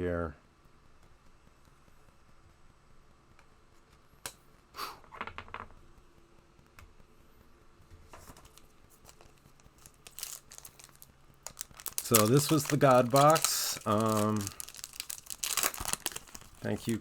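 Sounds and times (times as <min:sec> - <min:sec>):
rustling card packaging: 0:08.2 - 0:17.0
cards clicking as flipped: 0:11.6 - 0:16.8.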